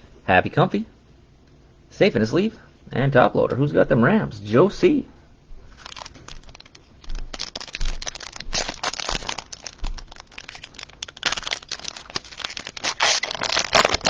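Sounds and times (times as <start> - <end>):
cellophane crinkling and tearing: 5.7 - 14.0.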